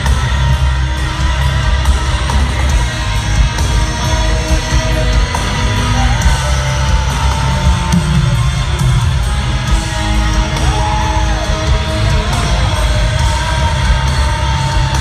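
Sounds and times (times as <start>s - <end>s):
distorted electric guitars: 0.0s - 15.0s
drum hits: 7.7s - 10.8s.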